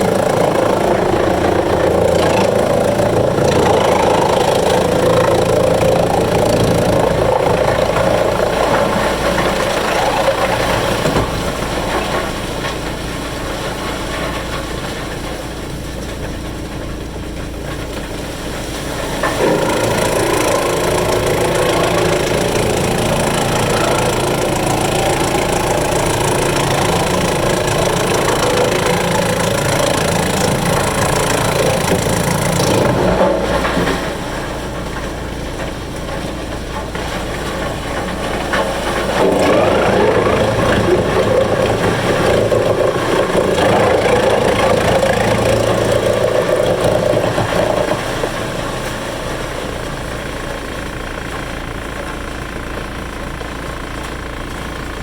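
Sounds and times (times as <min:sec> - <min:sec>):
wood chipper engine running: 0:00.0 - 0:55.0.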